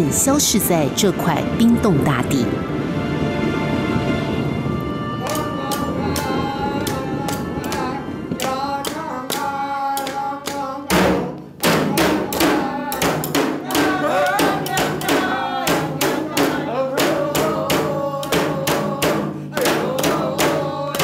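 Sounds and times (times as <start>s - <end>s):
voices singing: 5.1s - 21.0s
drum beat: 5.3s - 21.0s
loud drum hit: 10.9s - 21.0s.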